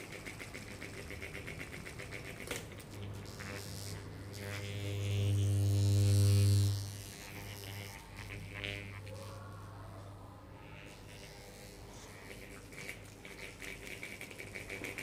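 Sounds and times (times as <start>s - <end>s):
loud buzzing hum: 2.8s - 10.0s.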